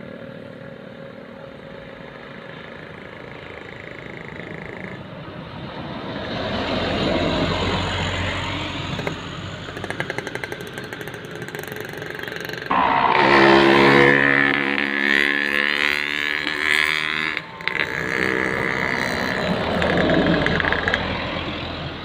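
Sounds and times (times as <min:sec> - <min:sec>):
steady engine drone: 0:00.0 - 0:22.0
large truck passing: 0:01.7 - 0:22.0
rapid rattling: 0:09.6 - 0:12.8.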